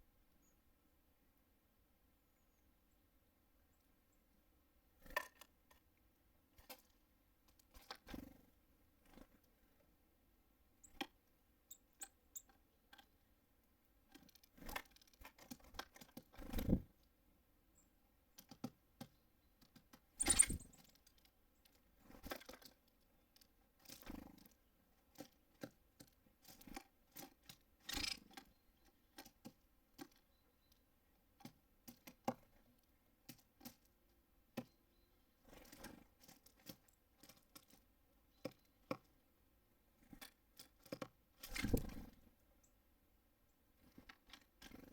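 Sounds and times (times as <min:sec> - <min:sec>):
beaks pecking on feeder: 0:10.8 - 0:17.1, 0:17.8 - 0:39.2, 0:39.9 - 0:42.8.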